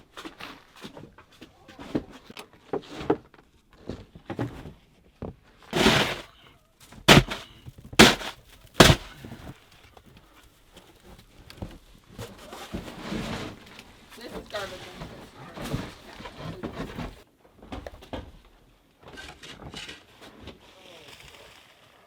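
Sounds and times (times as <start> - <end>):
short scraping rush: 5.8 - 6.2, 7.1 - 7.4, 8.0 - 9.1
sharp knocks: 7.1 - 7.4, 8.0 - 9.1.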